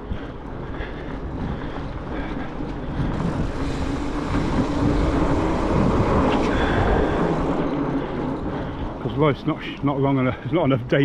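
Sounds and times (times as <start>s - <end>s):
wind and road noise: 0.0s - 11.0s
approaching vehicle engine: 2.4s - 10.2s.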